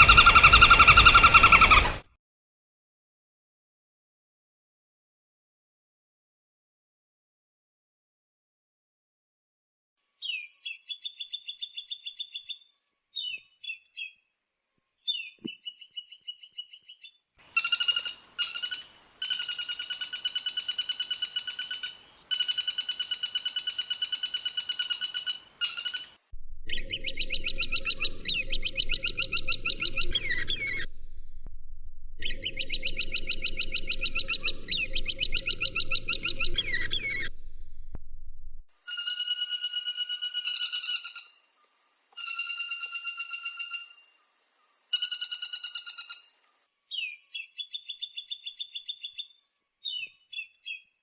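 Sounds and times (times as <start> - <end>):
woodpecker calls: 0.0 - 2.1, 15.0 - 30.9, 32.2 - 37.4, 38.9 - 44.3, 44.9 - 49.3
low hum: 26.3 - 38.7.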